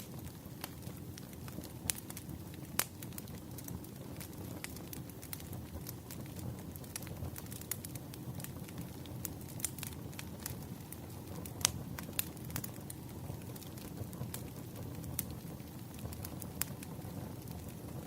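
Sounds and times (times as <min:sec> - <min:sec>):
bonfire flame rumble: 0:00.0 - 0:18.0
fire crackles and pops: 0:00.0 - 0:18.0.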